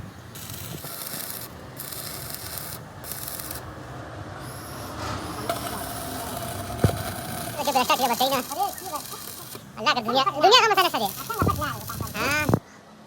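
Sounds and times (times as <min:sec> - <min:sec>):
abrasive scraping on a surface: 0:04.4 - 0:12.6.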